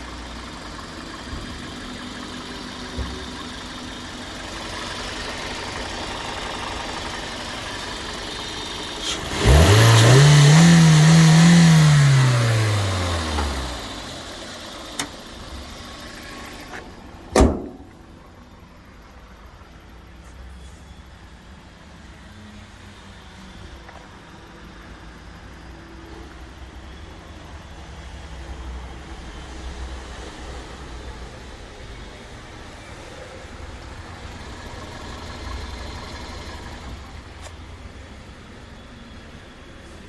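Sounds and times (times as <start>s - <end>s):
car engine revving: 7.7s - 16.4s.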